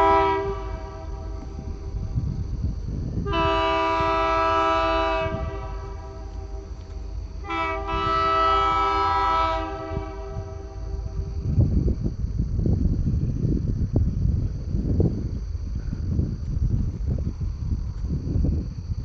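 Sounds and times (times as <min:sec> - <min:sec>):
locomotive air horn blasts: 0:00.0 - 0:01.8, 0:03.2 - 0:11.2
low rumble: 0:00.0 - 0:19.0.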